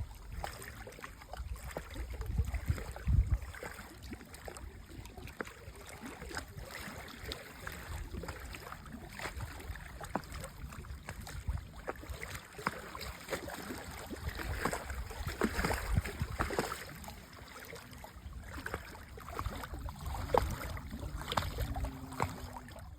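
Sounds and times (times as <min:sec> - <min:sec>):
lake water lapping: 0:00.0 - 0:22.9.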